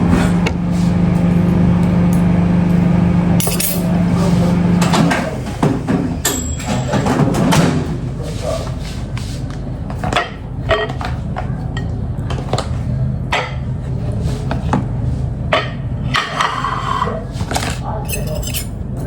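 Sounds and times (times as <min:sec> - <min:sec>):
steady low hum: 0:00.0 - 0:19.0
kitchenware knocks and clinks: 0:05.9 - 0:07.8, 0:18.1 - 0:19.0.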